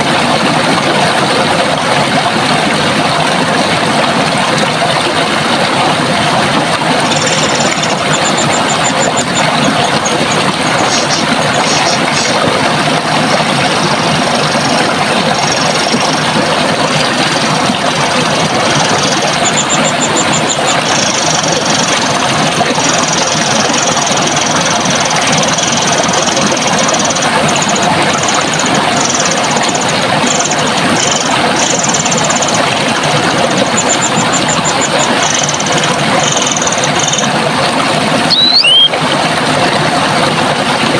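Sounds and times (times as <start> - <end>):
running water rushing: 0.0 - 40.9
small birds chirping and trilling: 38.3 - 38.9.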